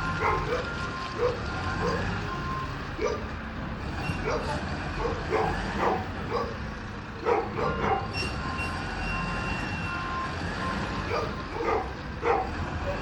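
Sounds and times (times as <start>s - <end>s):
diesel engine rumbling: 0.0s - 13.0s
truck reversing beeper: 0.0s - 13.0s
dog barking: 0.2s - 0.6s, 1.2s - 2.1s, 3.0s - 3.3s, 4.2s - 6.6s, 7.2s - 8.1s, 11.1s - 13.0s.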